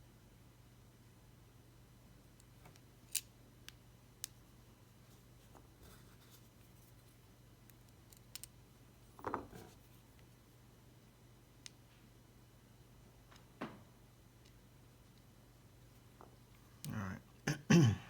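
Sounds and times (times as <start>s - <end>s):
small tools clicking on watch parts: 7.7s - 8.5s.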